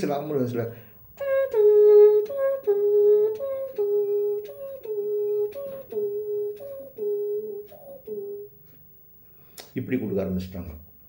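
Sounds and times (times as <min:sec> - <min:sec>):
man imitating a siren: 0:01.2 - 0:08.5.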